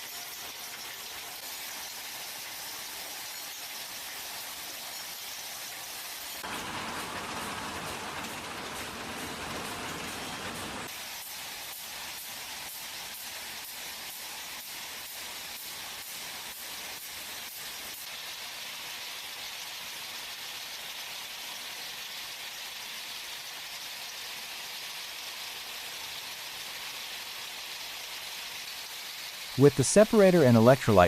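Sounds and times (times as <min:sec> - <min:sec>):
machinery hiss: 0:06.0 - 0:18.0, 0:27.8 - 0:31.0.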